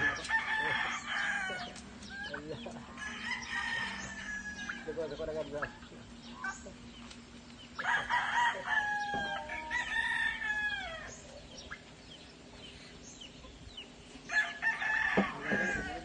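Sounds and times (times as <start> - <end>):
rooster crowing: 0.0 - 5.2, 7.8 - 11.2, 14.3 - 16.0.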